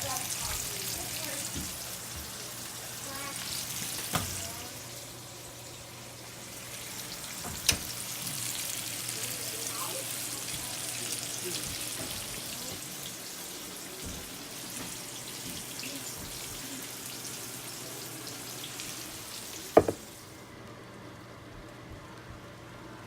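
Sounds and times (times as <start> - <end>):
food sizzling in a hot pan: 0.0 - 20.9.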